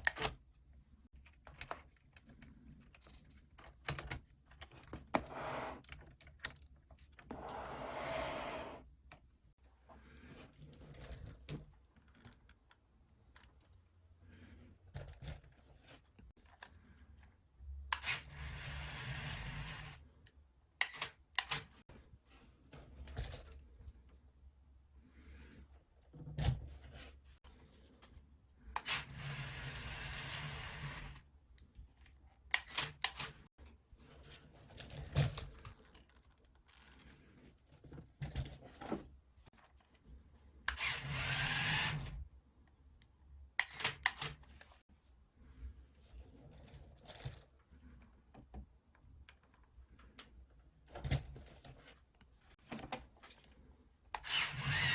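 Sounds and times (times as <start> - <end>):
electric motors whirring: 54.2 - 54.9.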